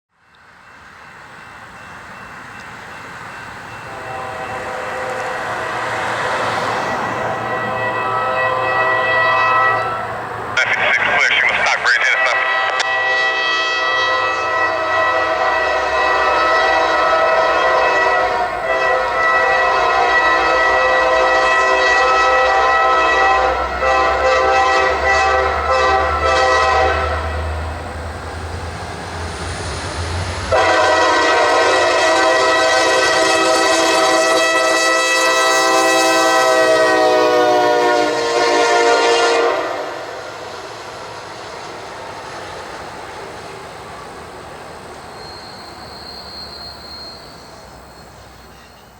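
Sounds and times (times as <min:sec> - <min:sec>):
passing train: 0:00.1 - 0:48.9
diesel locomotive horn blasts: 0:03.9 - 0:11.0, 0:11.8 - 0:27.8, 0:30.5 - 0:40.6
locomotive engine rumble: 0:09.9 - 0:33.8.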